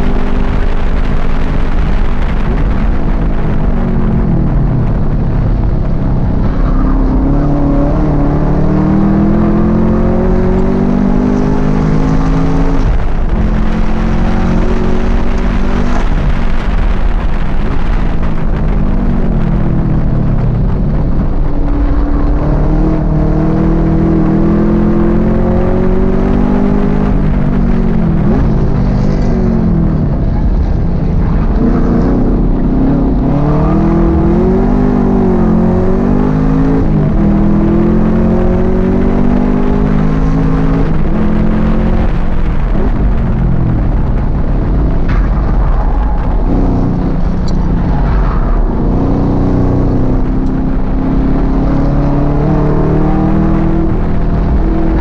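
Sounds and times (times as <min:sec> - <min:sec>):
car engine at full throttle: 0:00.0 - 0:55.0.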